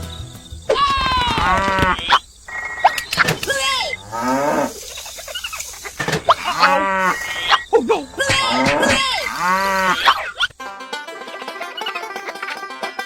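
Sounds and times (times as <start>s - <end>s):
cattle mooing: 0.7s - 10.5s.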